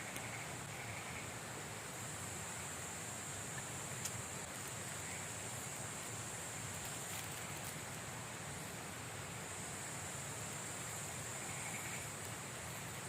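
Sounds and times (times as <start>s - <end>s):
wind: 0.0s - 13.0s
faint click: 3.6s - 4.2s.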